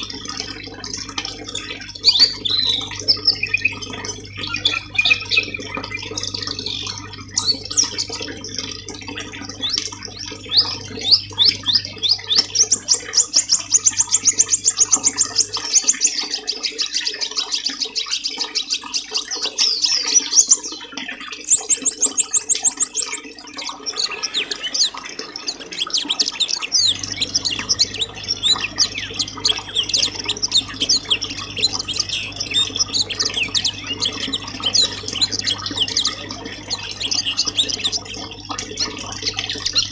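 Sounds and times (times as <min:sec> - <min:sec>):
songbirds chirping and trilling: 0:00.0 - 0:39.9
very high rapid bird trill: 0:21.4 - 0:39.9
faint low hum: 0:23.9 - 0:39.9.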